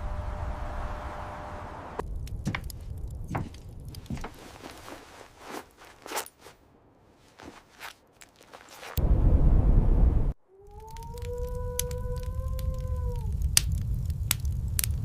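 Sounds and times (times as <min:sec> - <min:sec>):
steady wind-like noise: 0:00.0 - 0:15.0
footsteps in snow: 0:02.5 - 0:09.0.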